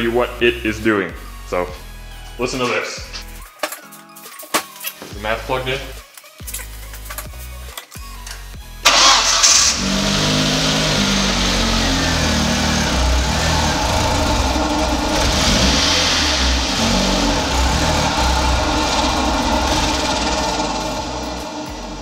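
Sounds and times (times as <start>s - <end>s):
car engine starting and idling unevenly: 8.8s - 22.0s.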